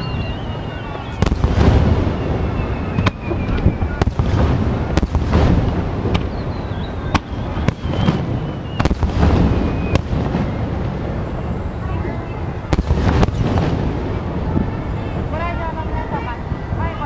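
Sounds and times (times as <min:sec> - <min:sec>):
fireworks crackle: 0:00.0 - 0:17.0
firework shells bursting: 0:00.9 - 0:11.4
deep booming rumbles: 0:01.2 - 0:16.8.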